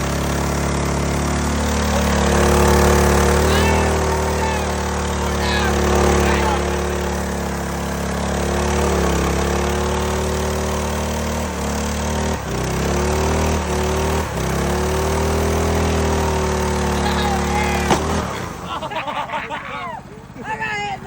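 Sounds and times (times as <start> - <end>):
small engine running at high speed: 0.0 - 19.0.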